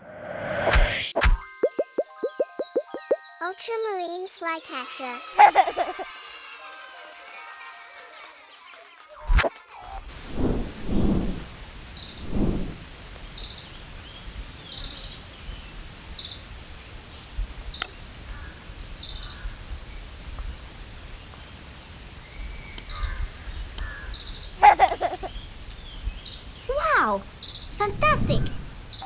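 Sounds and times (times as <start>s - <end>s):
background hiss: 10.1s - 29.0s.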